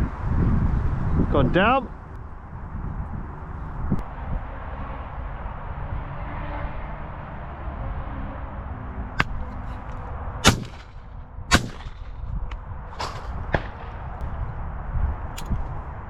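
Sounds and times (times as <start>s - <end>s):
wind rumble on microphone: 0.0s - 16.0s
shotgun shots: 10.4s - 12.3s, 13.0s - 14.2s.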